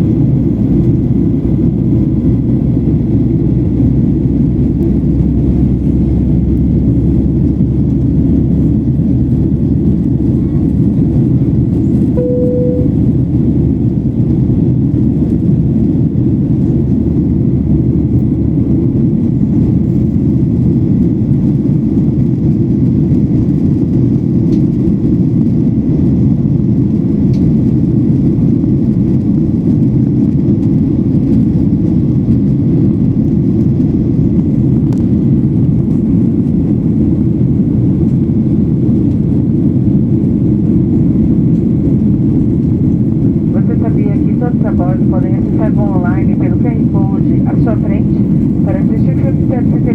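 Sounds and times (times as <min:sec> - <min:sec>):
airplane cabin engine rumble: 0:00.0 - 0:49.9
short single tone: 0:12.2 - 0:13.4.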